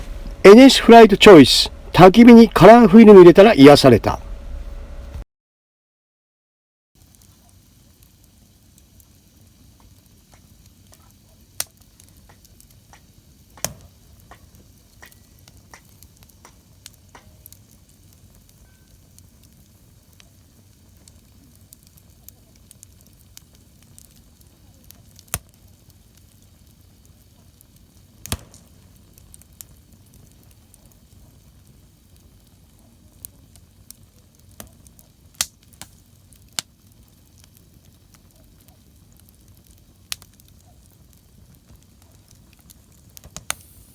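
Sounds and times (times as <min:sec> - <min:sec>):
campfire crackling and popping: 0:00.0 - 0:05.2, 0:07.0 - 0:43.9.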